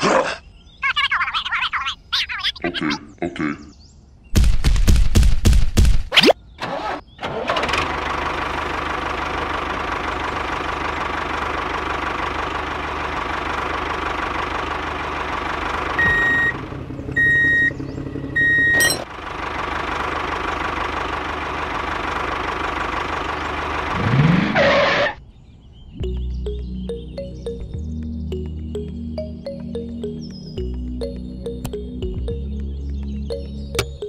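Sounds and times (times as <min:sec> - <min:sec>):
tractor diesel engine running: 0:06.6 - 0:25.2, 0:26.0 - 0:34.0.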